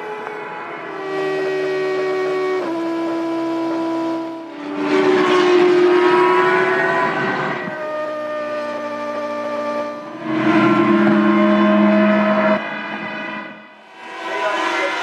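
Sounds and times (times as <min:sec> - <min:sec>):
racing car engines revving: 0:00.0 - 0:15.0
racing car passing by: 0:04.2 - 0:15.0.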